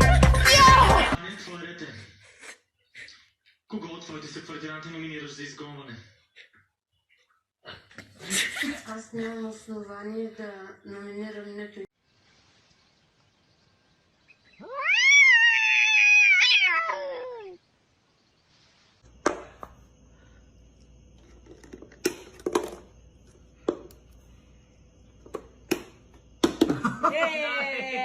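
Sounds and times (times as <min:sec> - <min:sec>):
cat meowing: 0:14.5 - 0:17.6
faint hum: 0:17.0 - 0:28.0.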